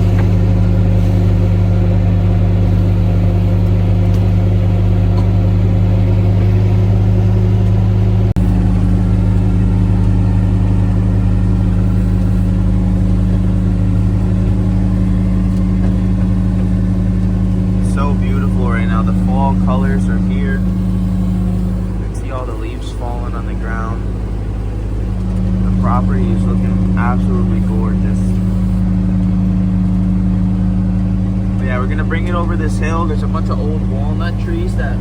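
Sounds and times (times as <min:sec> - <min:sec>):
tractor engine under load: 0:00.0 - 0:35.0.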